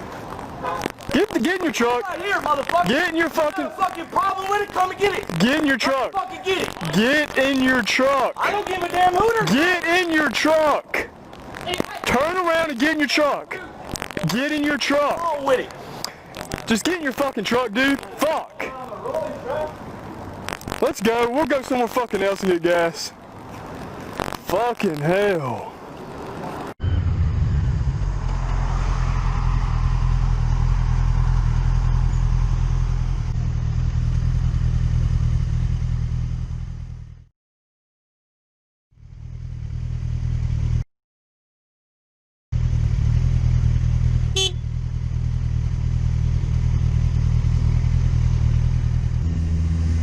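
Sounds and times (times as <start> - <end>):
wind and road noise: 0.0 - 37.2, 42.6 - 50.0
motorcycle engine running: 29.4 - 37.3, 39.0 - 40.8, 42.6 - 50.0.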